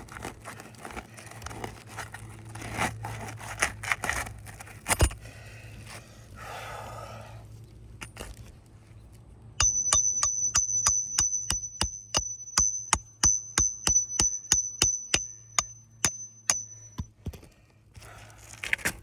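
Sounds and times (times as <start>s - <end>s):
metal ringing note: 9.6s - 17.2s
hammer tapping steel: 9.6s - 17.3s.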